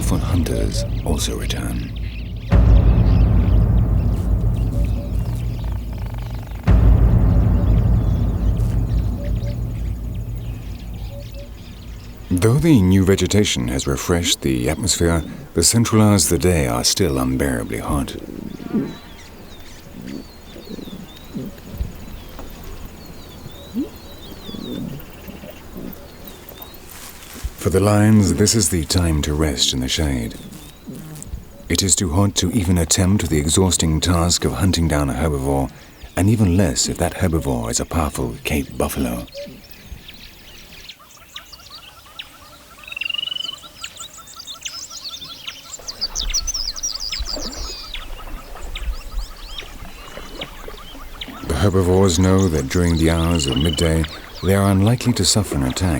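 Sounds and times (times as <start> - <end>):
low rumble: 0.0 - 15.2.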